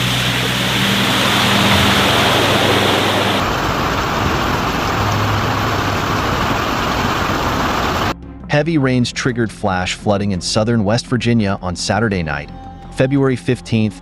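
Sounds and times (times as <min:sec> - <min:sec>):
floodwater rushing: 0:00.0 - 0:08.2.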